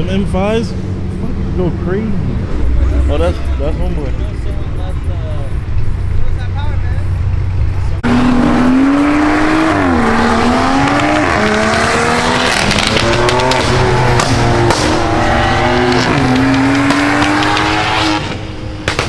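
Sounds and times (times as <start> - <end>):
exhaust crackles: 0.0 - 19.0
car engine revving hard: 8.0 - 19.0.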